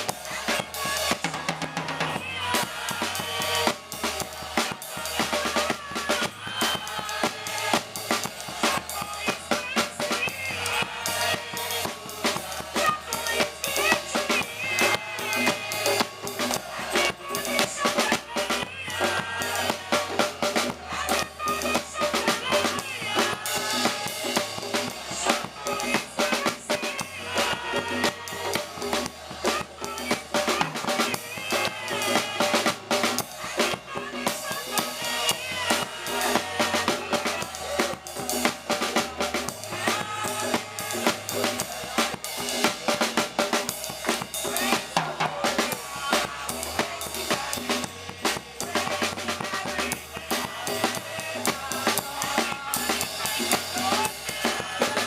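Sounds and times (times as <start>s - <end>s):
busy drum kit: 0.0s - 55.0s
gospel band music: 0.0s - 55.0s.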